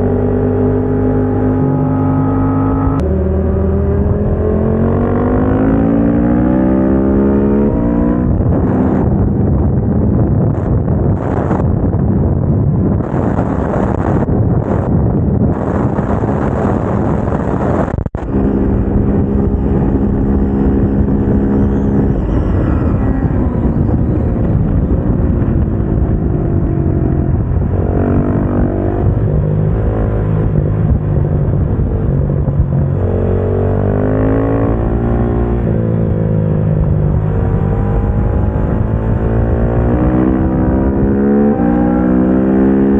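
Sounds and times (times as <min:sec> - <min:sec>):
motorcycle engine revving: 0:00.0 - 0:12.0, 0:12.9 - 0:42.9
wind rush: 0:00.0 - 0:42.9.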